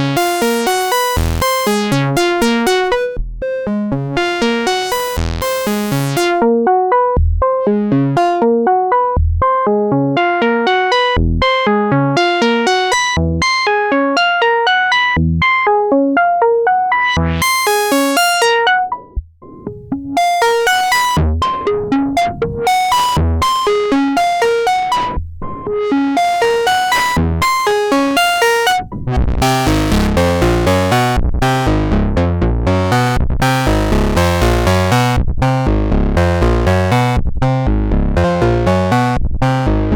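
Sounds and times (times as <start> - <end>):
deep synth bass note: 0.0 - 3.5, 4.2 - 6.5, 19.2 - 39.9
synthesizer sequence: 0.0 - 6.5, 17.4 - 31.9.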